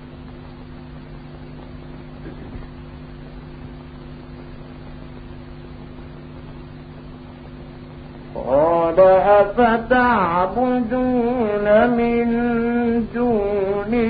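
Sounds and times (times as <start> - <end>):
low electrical hum: 0.0 - 14.0
recording hiss: 0.0 - 14.0.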